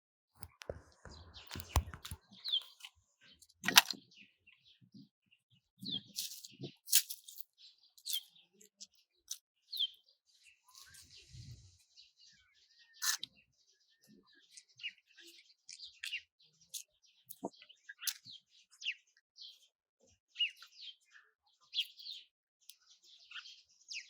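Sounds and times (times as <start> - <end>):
sharp clicks or knocks: 0.4 - 2.6
bird chirping: 0.4 - 4.8.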